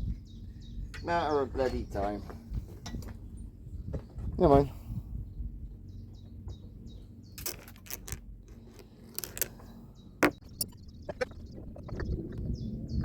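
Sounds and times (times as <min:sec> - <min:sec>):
small bird chirping: 0:09.5 - 0:13.0.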